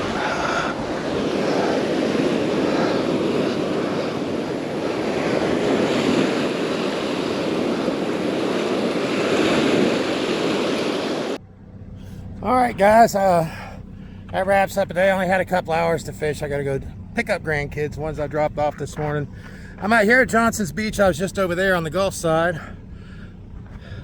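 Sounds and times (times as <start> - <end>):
surf breaking on beach: 0.0 - 11.4
wind buffeting microphone: 0.0 - 11.4, 14.2 - 24.0.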